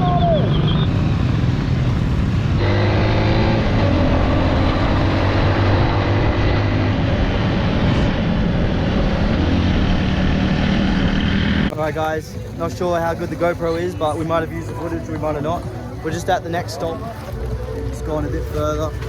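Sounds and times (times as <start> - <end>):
wind rush on microphone: 0.0 - 11.7
dirt bike engine running: 0.3 - 11.7.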